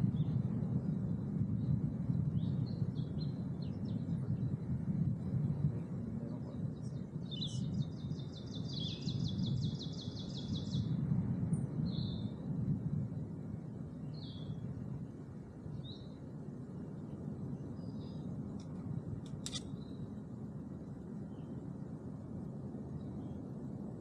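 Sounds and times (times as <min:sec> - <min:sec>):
steady low rumble: 0:00.0 - 0:24.0
songbird trilling and chirping: 0:07.3 - 0:10.9.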